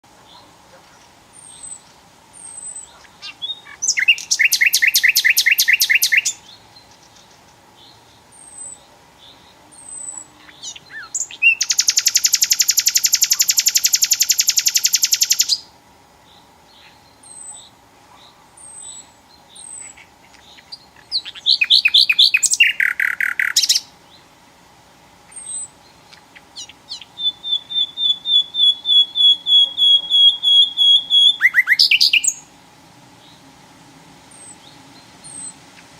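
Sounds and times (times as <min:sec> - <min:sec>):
bird singing fast trills: 0:01.3 - 0:17.8, 0:18.6 - 0:24.3, 0:25.2 - 0:32.5, 0:34.3 - 0:35.9
high bird chirps: 0:02.4 - 0:07.4, 0:08.4 - 0:15.7, 0:18.6 - 0:23.9, 0:25.3 - 0:32.5.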